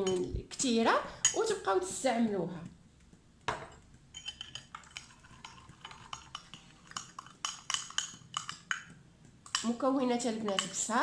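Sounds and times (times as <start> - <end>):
spoon clinking against a bowl: 3.6 - 8.9, 9.5 - 11.0.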